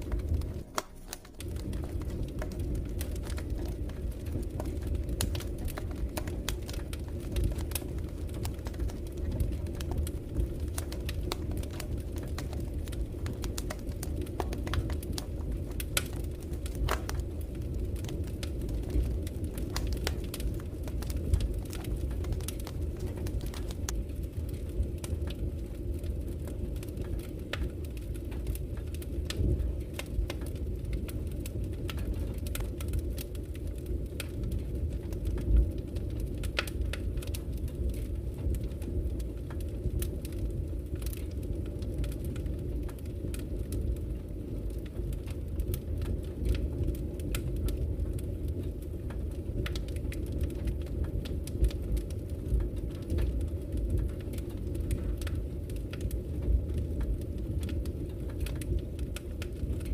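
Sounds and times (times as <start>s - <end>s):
fire crackles and pops: 0.0s - 59.9s
wood fire rumbling: 0.0s - 59.9s.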